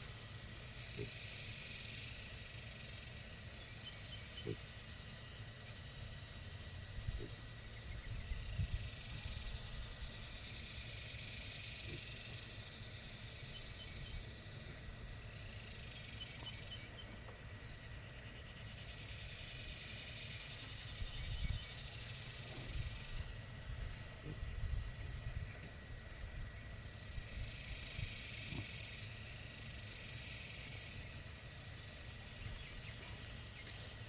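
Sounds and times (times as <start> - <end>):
high hiss: 17.4 - 34.0.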